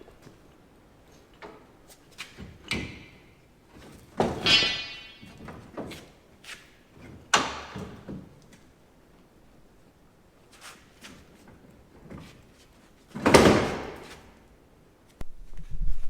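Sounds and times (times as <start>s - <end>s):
heavy metal clanks and knocks: 4.2s - 5.9s
ringing metal strikes: 4.4s - 5.4s.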